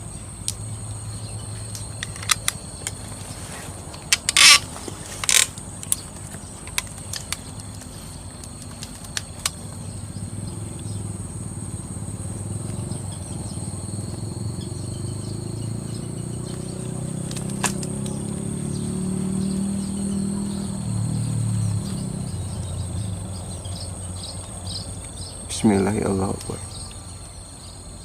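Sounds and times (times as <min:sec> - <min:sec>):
high-pitched insect drone: 0:00.0 - 0:28.0
sharp crack: 0:03.9 - 0:09.7, 0:17.2 - 0:18.4.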